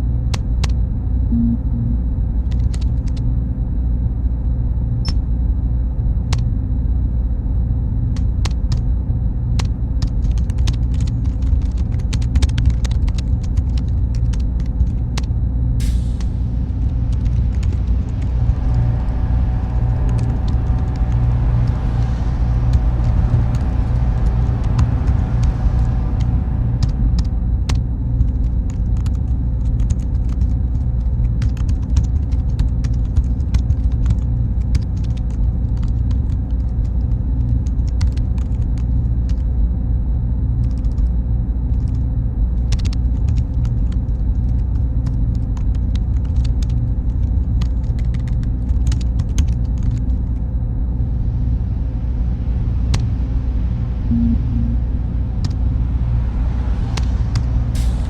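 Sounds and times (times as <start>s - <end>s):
deep machine hum: 0.0s - 42.5s, 43.1s - 58.0s
thin high whine: 1.3s - 2.4s, 54.0s - 55.8s.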